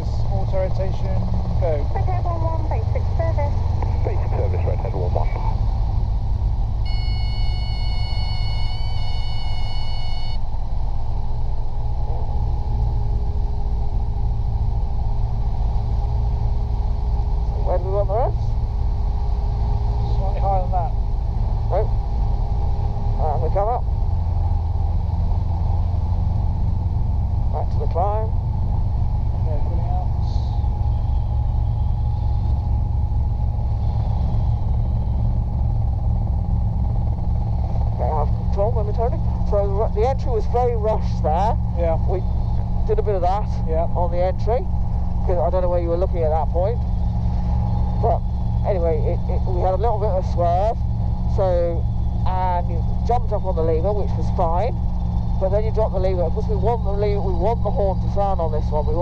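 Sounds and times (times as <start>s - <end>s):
faint whine: 0.0s - 59.0s
helicopter rotor rumble: 0.0s - 59.0s
high steady tones: 6.7s - 15.8s.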